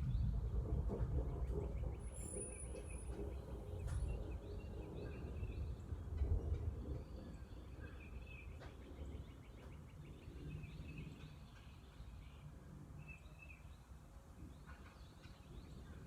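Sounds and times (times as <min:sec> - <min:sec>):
steady low rumble: 0:00.0 - 0:09.3
songbirds chirping: 0:00.1 - 0:16.0.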